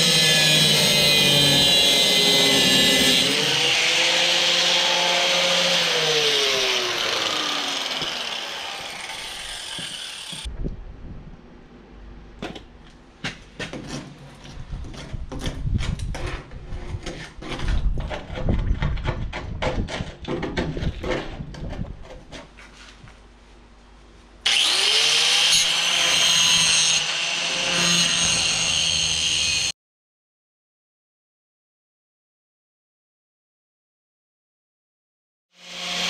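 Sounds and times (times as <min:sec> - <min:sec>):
angle grinder grinding steel: 0:00.0 - 0:10.5, 0:24.5 - 0:29.7, 0:35.6 - 0:36.0.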